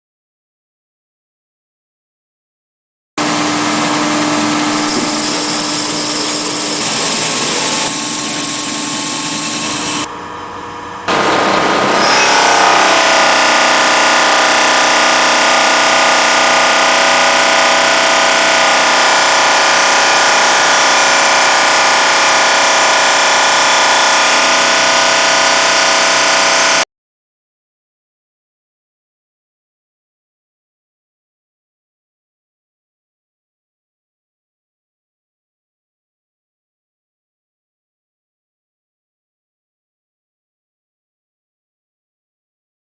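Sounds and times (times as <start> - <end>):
belt sanding machine humming: 3.8 - 10.1, 11.1 - 26.8.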